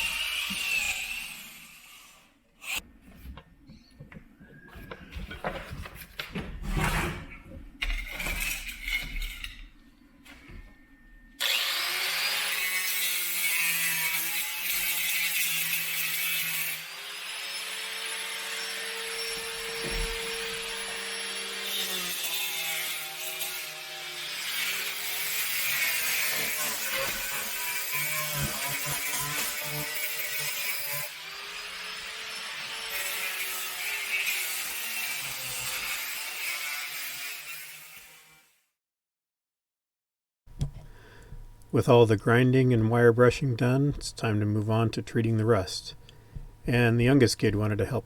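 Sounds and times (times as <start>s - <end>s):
angle grinder on steel: 0.0s - 2.8s, 11.4s - 38.6s.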